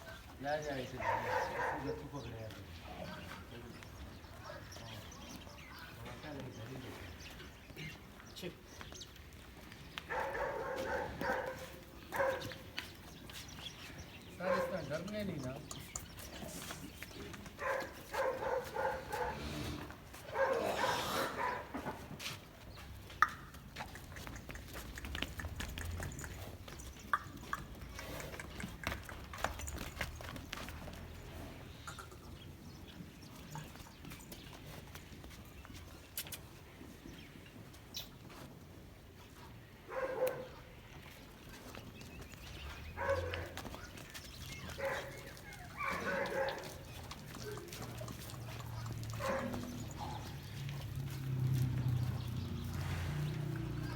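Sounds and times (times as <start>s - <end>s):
dog barking: 1.0s - 2.0s, 10.1s - 12.6s, 14.4s - 14.9s, 17.6s - 19.4s, 20.3s - 21.8s, 39.9s - 40.7s, 43.0s - 43.6s, 44.8s - 46.8s, 49.2s - 50.4s.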